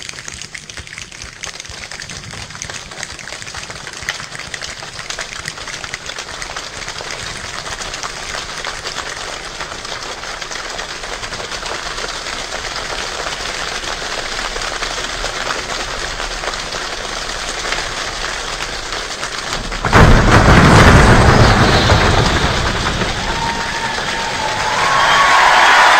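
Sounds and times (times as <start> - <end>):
steady rain: 0.0 - 25.9
loud boom: 19.6 - 25.3.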